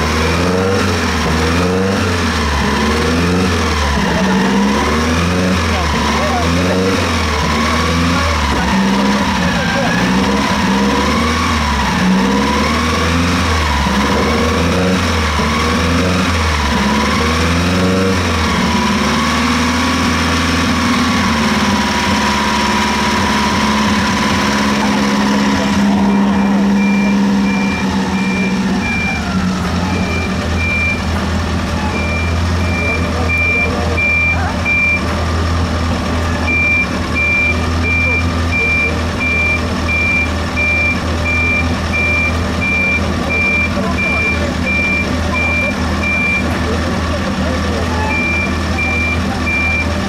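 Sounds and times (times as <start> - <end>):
truck engine running: 0.0 - 50.0
vintage car engine revving: 0.0 - 50.0
reversing alarm beeps: 26.0 - 31.1, 31.9 - 35.1, 36.5 - 46.5, 48.0 - 50.0.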